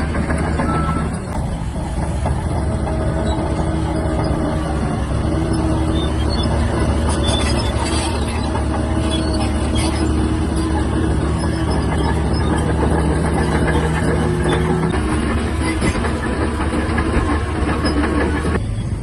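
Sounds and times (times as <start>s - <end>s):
bulldozer diesel engine drone: 0.0s - 19.0s
squeaks and clinks from tracks: 0.0s - 19.0s.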